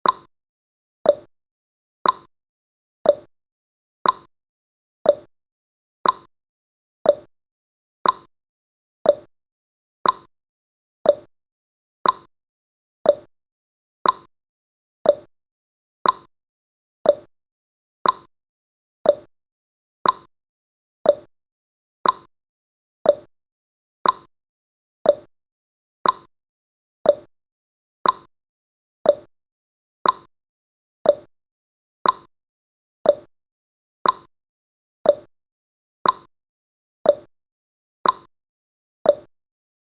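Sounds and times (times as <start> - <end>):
clock ticking: 2.0 - 2.3, 4.0 - 4.3, 6.0 - 6.3, 8.0 - 8.3, 10.0 - 10.3, 12.0 - 12.3, 14.0 - 14.3, 15.1 - 15.3, 16.0 - 16.3, 18.0 - 18.3, 20.0 - 20.3, 21.1 - 21.3, 22.0 - 22.3, 24.0 - 24.3, 26.0 - 26.3, 28.0 - 28.3, 29.1 - 29.3, 30.0 - 30.3, 31.1 - 31.3, 32.0 - 32.3, 33.1 - 33.3, 34.0 - 34.3, 35.1 - 35.3, 36.0 - 36.3, 38.0 - 38.3, 39.1 - 39.3.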